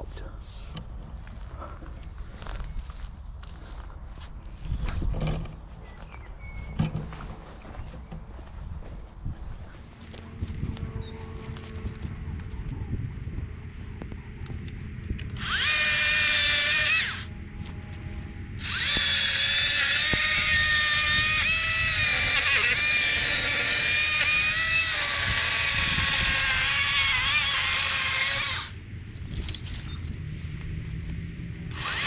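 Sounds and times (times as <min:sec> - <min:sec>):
power saw cutting branch: 0:15.3 - 0:28.8, 0:31.7 - 0:32.0.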